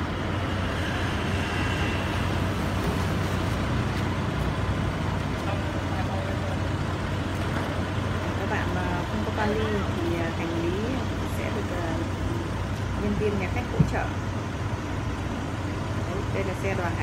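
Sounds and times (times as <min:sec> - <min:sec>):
vehicle engines idling hum: 0:00.0 - 0:17.0.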